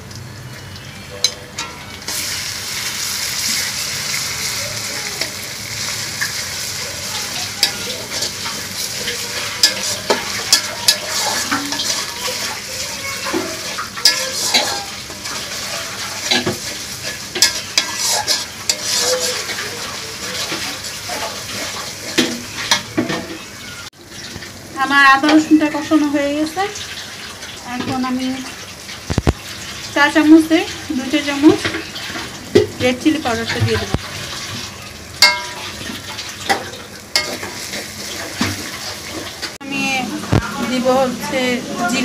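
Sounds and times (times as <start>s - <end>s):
paste sizzling in hot oil: 1.8s - 39.6s
spatula scraping and knocking pan: 6.2s - 23.5s, 31.4s - 34.6s, 35.2s - 39.6s.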